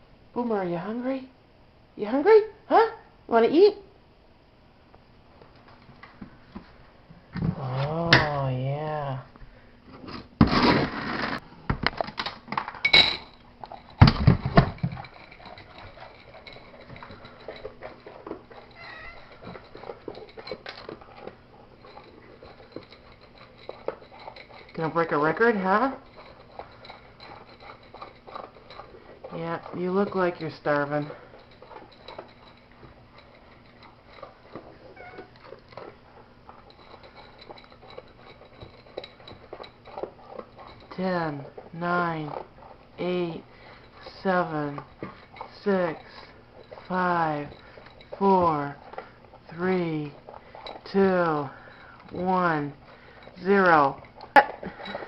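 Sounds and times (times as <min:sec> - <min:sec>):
dog crunching kibble from bowl: 0:10.4 - 0:12.8
dry dog food rattling into bowl: 0:12.0 - 0:55.0
dog crunching kibble: 0:13.6 - 0:55.0.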